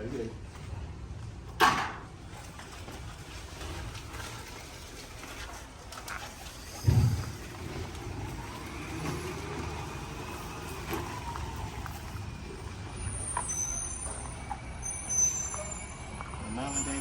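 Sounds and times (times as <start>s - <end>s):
vehicle engine rumbling: 0.0s - 17.0s
thin high whistling tones: 13.0s - 17.0s.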